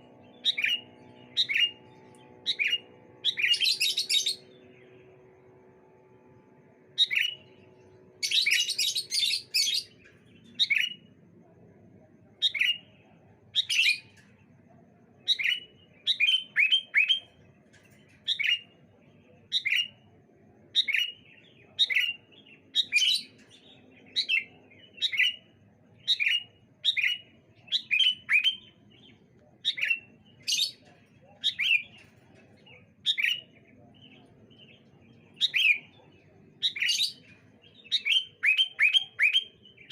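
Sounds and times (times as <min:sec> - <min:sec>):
bird chattering: 0:00.0 - 0:04.6, 0:06.9 - 0:07.6, 0:24.0 - 0:39.9
birds calling: 0:00.0 - 0:11.0, 0:20.7 - 0:39.9.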